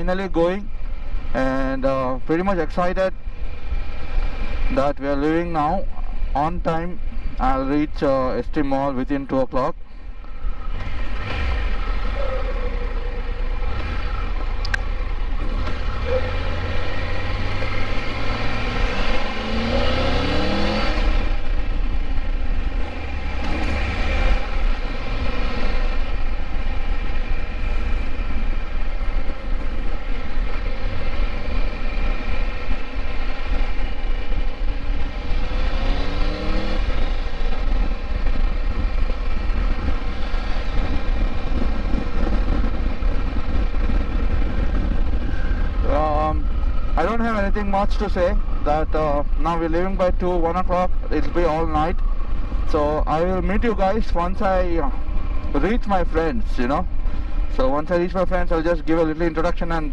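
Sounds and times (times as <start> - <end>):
motorcycle engine accelerating: 10.4 - 57.7.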